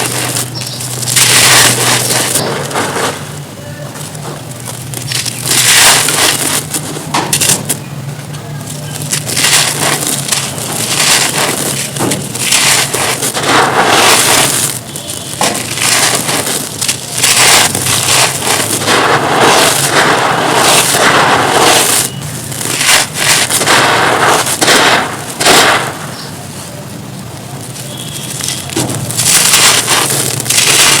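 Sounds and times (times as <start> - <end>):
brittle material crunching by hand: 0.0 - 3.2, 4.0 - 7.8, 8.8 - 26.3, 27.6 - 31.0.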